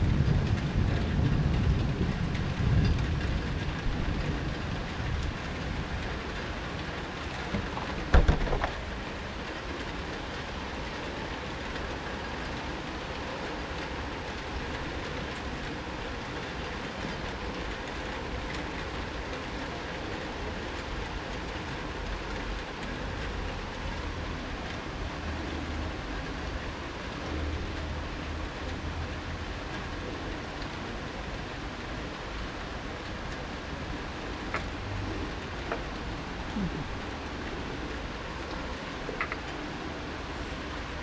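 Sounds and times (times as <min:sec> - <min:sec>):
rain hissing: 0:00.0 - 0:41.0
sharp knocks: 0:07.5 - 0:08.8.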